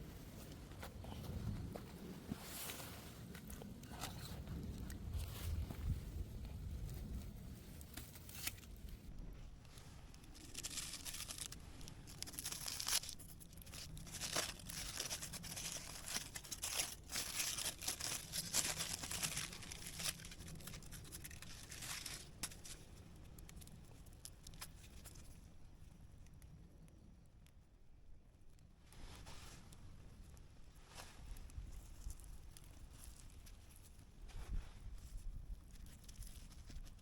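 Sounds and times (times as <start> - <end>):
paper crumpling and tearing: 10.3 - 22.8.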